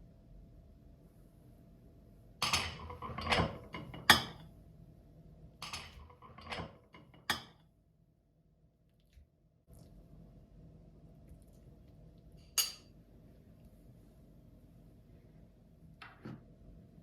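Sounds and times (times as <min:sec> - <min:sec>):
cookware clattering and knocking: 0:02.4 - 0:04.4, 0:05.6 - 0:07.6.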